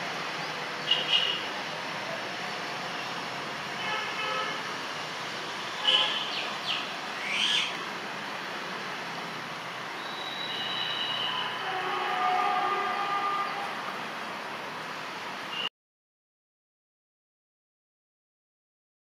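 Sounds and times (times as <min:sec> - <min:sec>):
short bird calls: 0:05.9 - 0:07.8
electric train running: 0:07.8 - 0:14.8.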